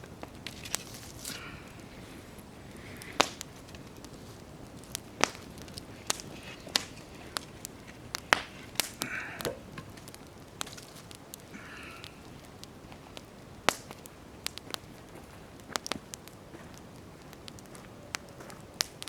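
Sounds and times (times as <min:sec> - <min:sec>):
campfire crackling and popping: 0:00.0 - 0:19.0
low steady hiss: 0:00.0 - 0:19.0.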